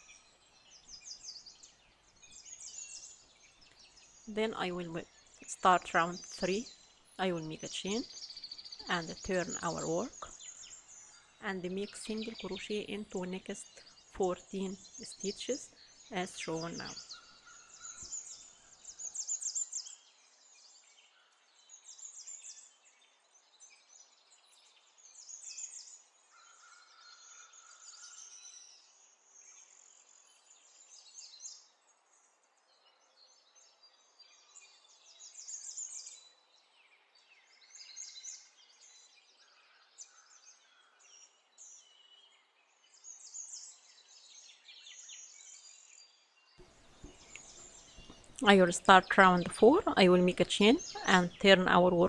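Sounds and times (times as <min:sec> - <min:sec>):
low background noise: 0:00.0 - 0:20.0, 0:46.6 - 0:52.0
faint bird chirping: 0:00.0 - 0:52.0.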